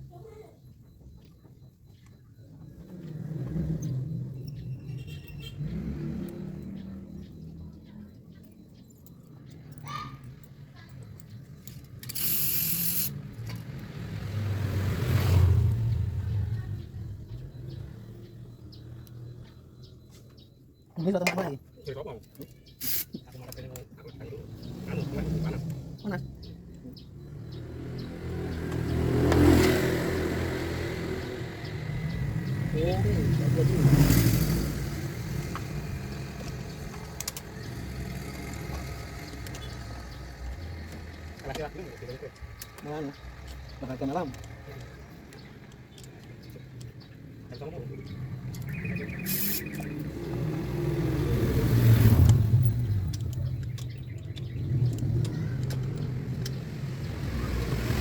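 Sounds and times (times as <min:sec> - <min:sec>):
motor vehicle passing: 0:02.4 - 0:08.7, 0:09.3 - 0:21.2, 0:24.0 - 0:58.0.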